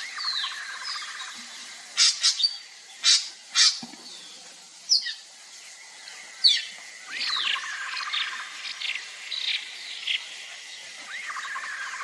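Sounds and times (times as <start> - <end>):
outdoor ambience: 0.0 - 12.0
wild birds calling: 6.4 - 12.0.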